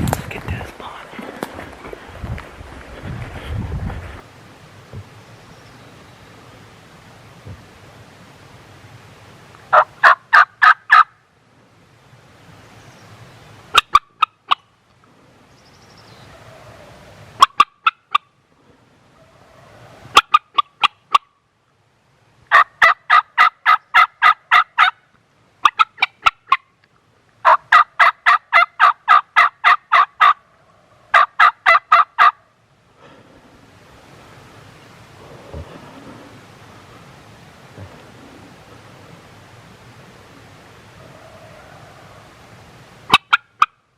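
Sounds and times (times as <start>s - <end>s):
turkey call yelps: 9.7s - 11.1s, 22.5s - 25.0s, 25.6s - 26.6s, 27.4s - 32.4s, 41.0s - 42.3s.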